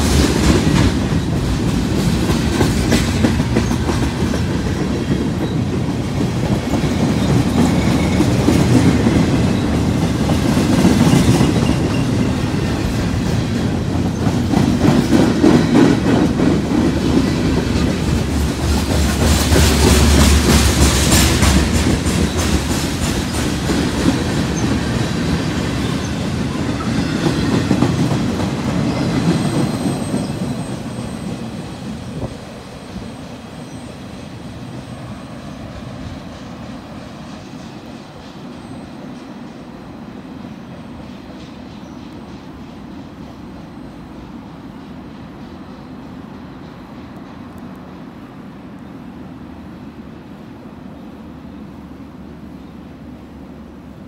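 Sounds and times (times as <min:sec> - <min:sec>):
wheels clicking over rail joints: 0:00.0 - 0:33.7
freight train rumbling: 0:00.0 - 0:54.0.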